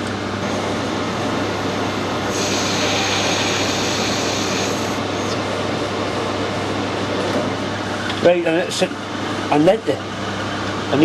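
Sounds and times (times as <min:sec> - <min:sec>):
lathe motor hum: 0:00.3 - 0:08.2
cutting tool hissing on metal: 0:02.3 - 0:05.4.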